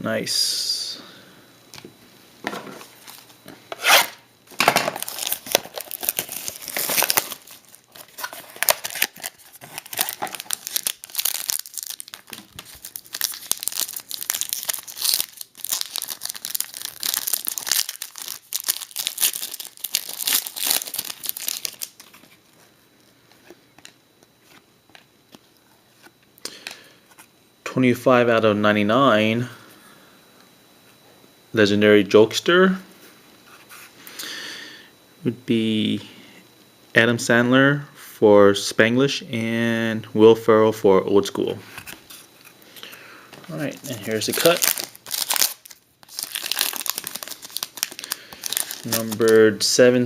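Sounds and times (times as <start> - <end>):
plastic packaging crinkling and tearing: 3.0 - 22.4, 43.5 - 49.4.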